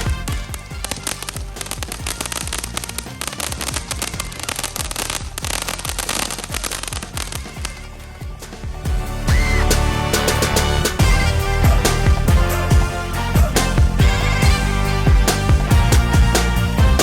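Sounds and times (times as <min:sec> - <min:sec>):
fireworks popping and crackling: 0:00.0 - 0:08.9
music playing: 0:00.0 - 0:17.0.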